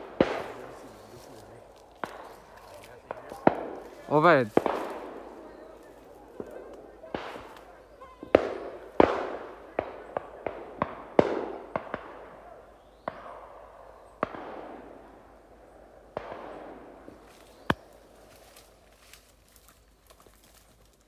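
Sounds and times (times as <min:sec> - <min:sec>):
shotgun shots echoing: 0:00.0 - 0:07.7, 0:08.3 - 0:13.6, 0:14.2 - 0:15.2, 0:16.1 - 0:18.1.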